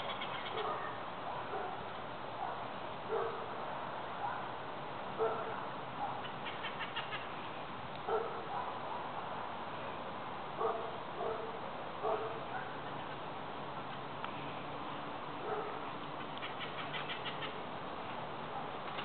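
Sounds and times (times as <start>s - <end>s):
parrots calling harshly: 0.0s - 0.7s, 6.2s - 7.3s, 16.2s - 17.6s
steady background noise: 0.0s - 19.0s.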